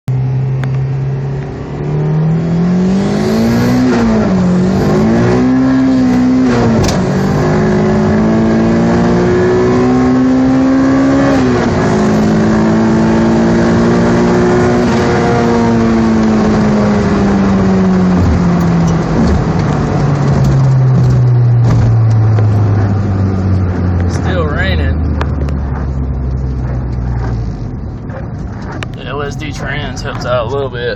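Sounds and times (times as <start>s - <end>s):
car engine accelerating through gears: 0.1s - 30.9s.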